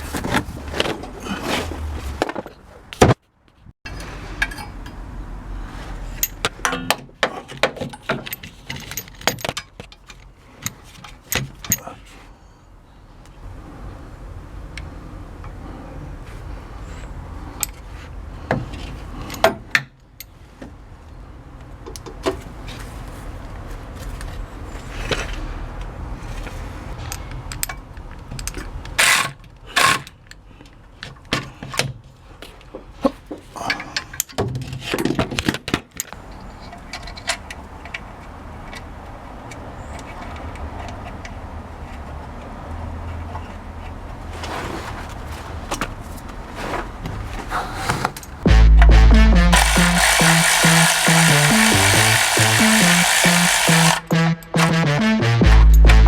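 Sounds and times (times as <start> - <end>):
metal tools clinking and scraping: 3.9 - 5.0
low rumble: 48.5 - 50.1.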